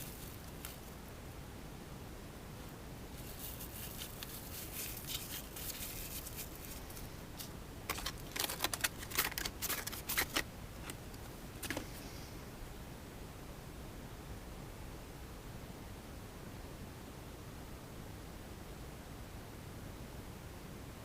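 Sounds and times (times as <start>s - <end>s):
packaging rustling: 3.2s - 12.0s.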